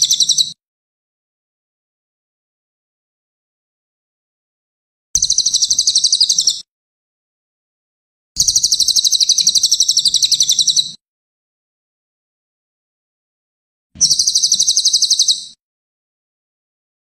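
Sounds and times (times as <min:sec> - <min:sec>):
songbird high-pitched trills: 0:00.0 - 0:00.6, 0:05.2 - 0:06.6, 0:08.4 - 0:11.0, 0:14.0 - 0:15.6.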